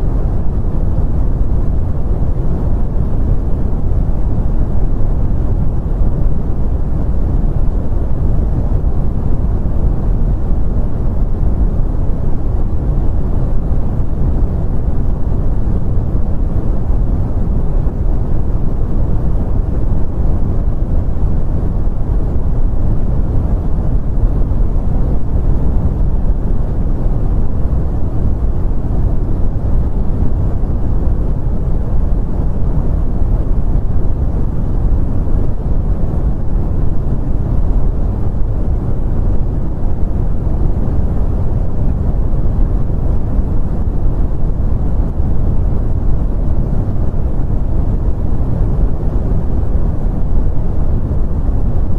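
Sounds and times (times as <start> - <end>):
brown noise: 0.0 - 51.9.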